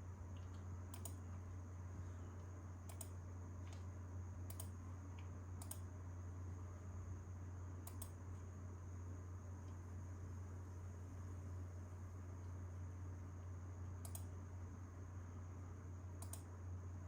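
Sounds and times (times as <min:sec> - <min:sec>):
computer keys clicking: 0:00.4 - 0:01.2, 0:02.9 - 0:03.8, 0:04.5 - 0:04.8, 0:05.6 - 0:05.8, 0:07.8 - 0:08.2, 0:14.0 - 0:14.3, 0:16.2 - 0:16.5.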